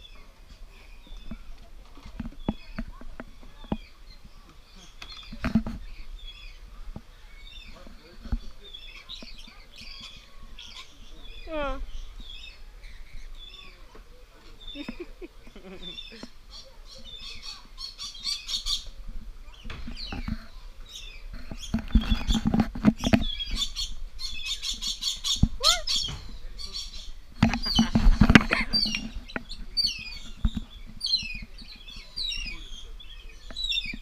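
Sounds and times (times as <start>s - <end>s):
birds chirping and calling: 0.0s - 34.0s
low thumping and rumbling: 25.4s - 29.8s.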